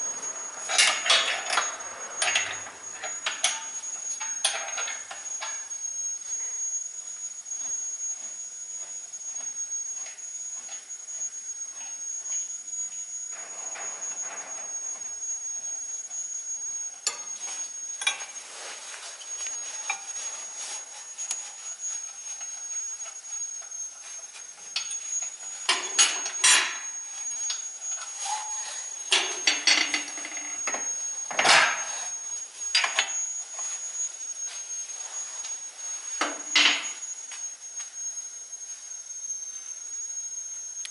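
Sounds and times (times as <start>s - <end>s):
faint high whine: 0.0s - 40.9s.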